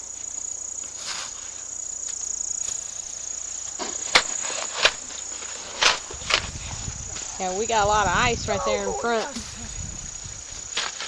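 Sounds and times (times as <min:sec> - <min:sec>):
snow shovel scraping packed snow: 0:00.9 - 0:01.6.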